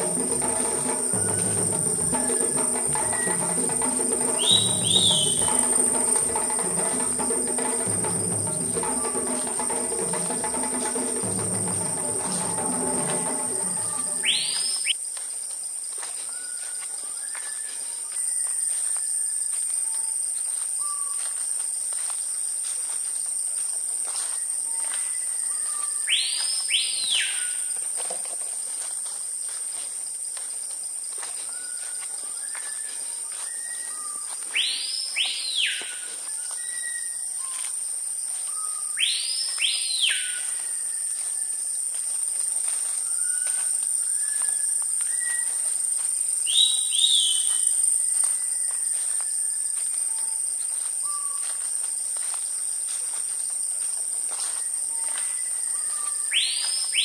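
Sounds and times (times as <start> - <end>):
loud whistled bird call: 0.0 - 7.2, 7.9 - 15.0, 20.8 - 21.2, 24.4 - 27.7, 31.4 - 37.7, 38.4 - 41.6, 42.9 - 45.8, 46.4 - 50.4, 51.0 - 51.5, 54.6 - 57.0
birds calling: 0.0 - 15.0, 33.0 - 37.7, 42.9 - 49.0
high-pitched insect drone: 0.0 - 15.0, 31.1 - 57.0.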